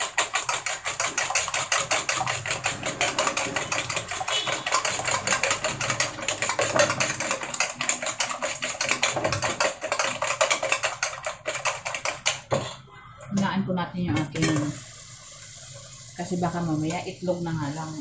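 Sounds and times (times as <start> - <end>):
egg sizzling in hot oil: 14.3 - 18.0.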